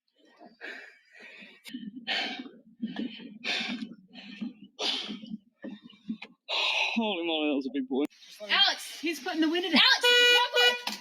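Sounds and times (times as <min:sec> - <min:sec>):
heavy breathing gasps: 0:00.5 - 0:07.0.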